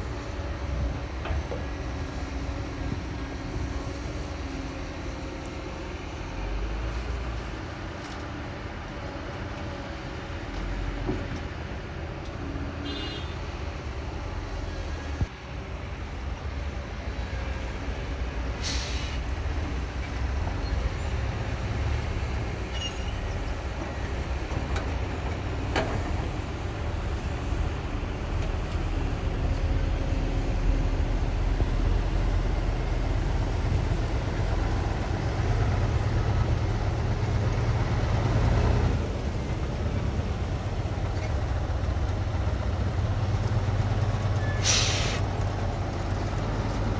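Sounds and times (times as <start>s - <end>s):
diesel engine rumbling: 16.2s - 46.9s
short hiss: 18.6s - 19.2s, 44.6s - 45.2s.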